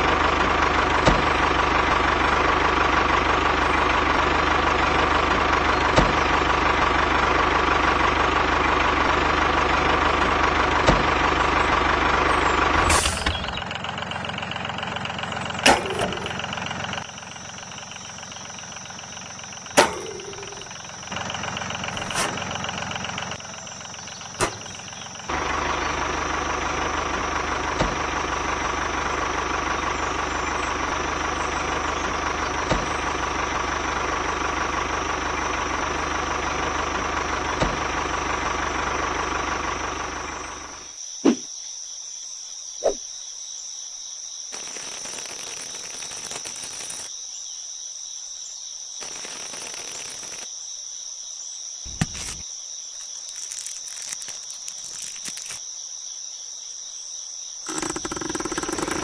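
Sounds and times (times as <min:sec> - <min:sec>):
toy tractor engine drone: 0:00.0 - 0:40.9, 0:44.5 - 0:47.1, 0:49.0 - 0:50.5, 0:53.3 - 0:55.6, 0:57.6 - 0:59.0
high insect trill: 0:16.2 - 0:25.4, 0:40.8 - 0:59.0
sharp clicks: 0:57.7 - 0:59.0.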